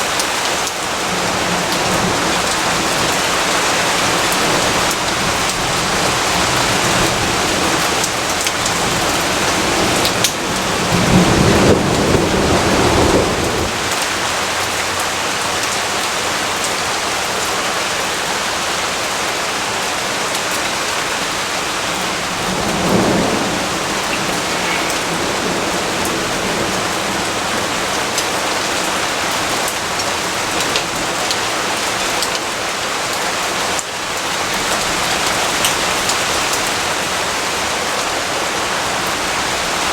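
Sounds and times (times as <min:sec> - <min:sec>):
steady rain: 0:00.0 - 0:39.9
thunder rumbling: 0:01.0 - 0:14.8, 0:21.0 - 0:29.8.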